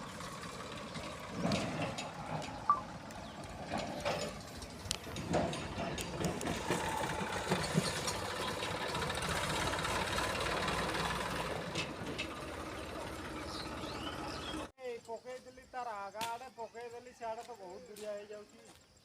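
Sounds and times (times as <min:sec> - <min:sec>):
diesel engine running: 0:00.0 - 0:14.7.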